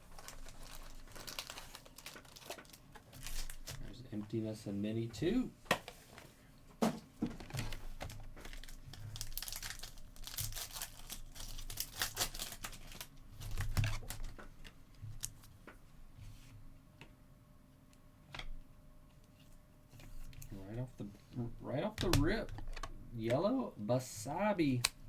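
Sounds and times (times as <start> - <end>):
wrappers tearing and crinkling: 0.0 - 3.9, 7.6 - 14.4.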